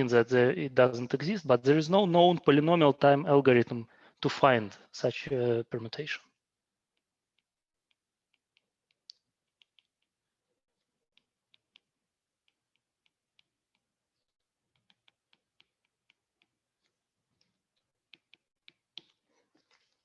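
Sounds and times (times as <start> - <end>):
writing on a board clicks: 11.1 - 13.9, 14.7 - 17.5, 18.1 - 20.0.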